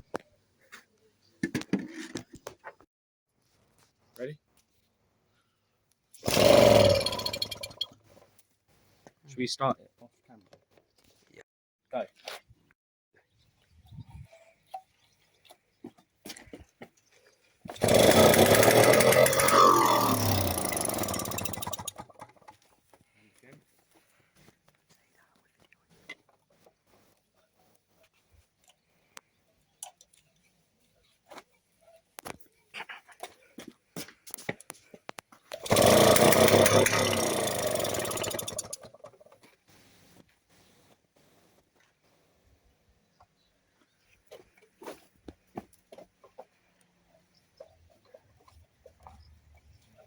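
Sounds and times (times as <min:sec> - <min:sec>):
small two-stroke engine running: 0:06.2 - 0:07.8, 0:17.7 - 0:22.4, 0:35.6 - 0:39.2.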